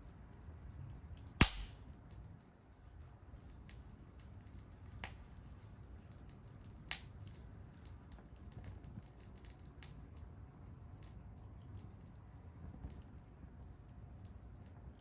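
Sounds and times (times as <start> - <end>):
fire crackling ticks: 0.0 - 15.0
low rumble of fire: 0.0 - 15.0
fire popping: 1.3 - 2.2.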